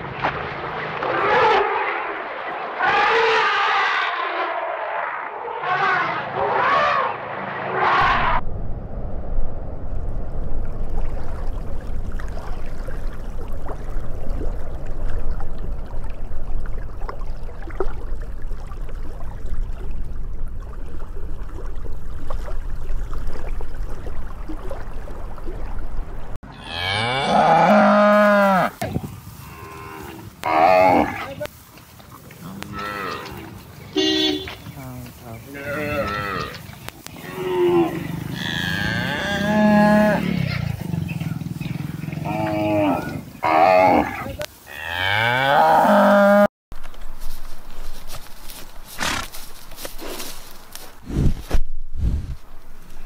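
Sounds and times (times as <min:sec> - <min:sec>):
low rumbling noise: 0:07.2 - 0:26.4
cow mooing: 0:26.5 - 0:28.8, 0:29.4 - 0:31.3, 0:32.4 - 0:34.6, 0:35.5 - 0:40.6, 0:41.8 - 0:46.5.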